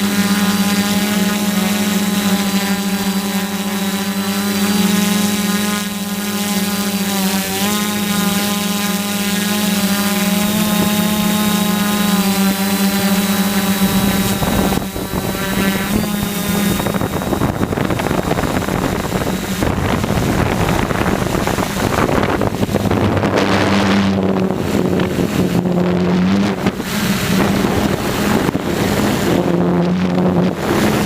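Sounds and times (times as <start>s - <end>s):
quadcopter motors whining: 0.0s - 31.0s
wind on microphone: 0.0s - 31.0s.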